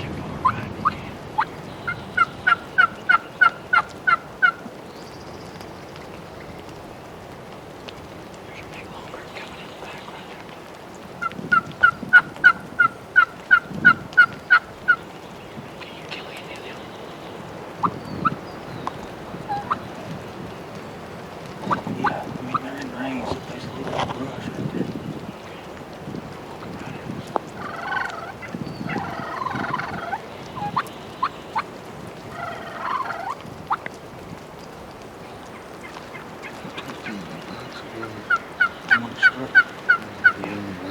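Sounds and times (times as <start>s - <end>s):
turkey yelps: 0.4s - 4.7s, 11.2s - 15.0s, 19.4s - 19.9s, 27.4s - 31.7s, 32.3s - 33.9s, 35.5s - 40.5s.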